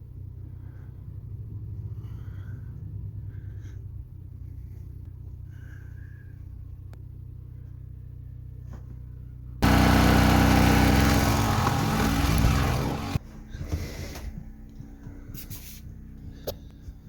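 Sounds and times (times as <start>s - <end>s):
engine low hum: 0.0s - 17.0s
loud engine: 9.6s - 13.2s.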